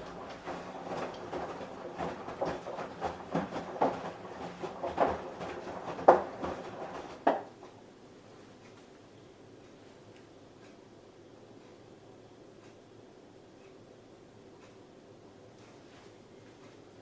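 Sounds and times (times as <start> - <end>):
washing machine drum tumbling laundry: 0.0 - 7.8.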